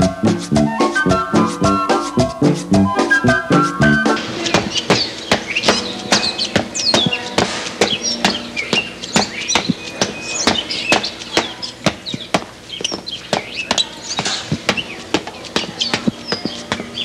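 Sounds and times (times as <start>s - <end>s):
birds chirping: 0.0s - 17.0s
sharp taps: 4.2s - 17.0s.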